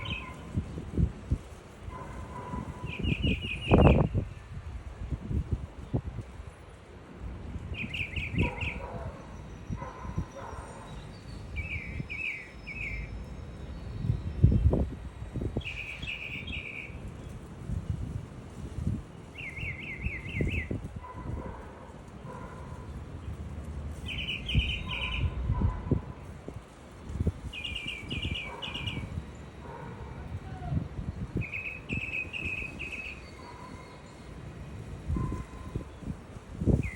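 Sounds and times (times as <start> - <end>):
small birds chirping: 0.0 - 0.5, 2.8 - 4.2, 7.7 - 14.6, 24.0 - 25.4, 27.4 - 29.8, 31.0 - 34.4.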